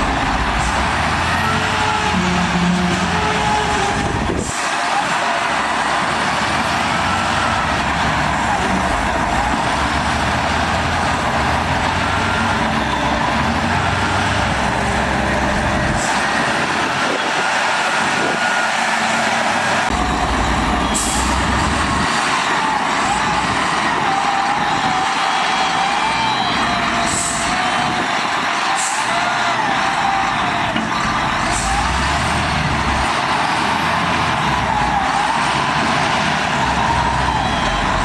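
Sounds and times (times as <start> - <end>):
low engine rumble: 0.0 - 4.5, 19.5 - 22.1.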